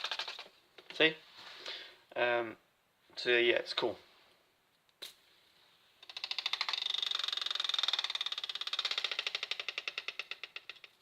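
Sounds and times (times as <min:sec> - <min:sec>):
fidget spinner rattling: 0:00.0 - 0:00.5, 0:06.0 - 0:11.0.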